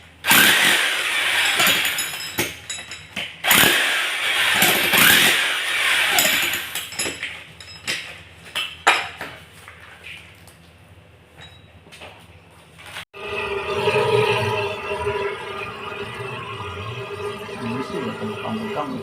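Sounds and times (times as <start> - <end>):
electric power tool running: 0.3 - 2.2, 3.4 - 6.8.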